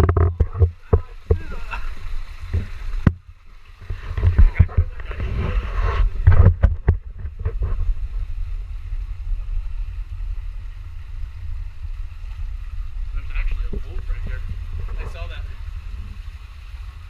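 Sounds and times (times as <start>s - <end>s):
knocks and rustles: 0.0s - 1.7s, 2.4s - 8.1s
wind buffeting microphone: 0.0s - 17.0s.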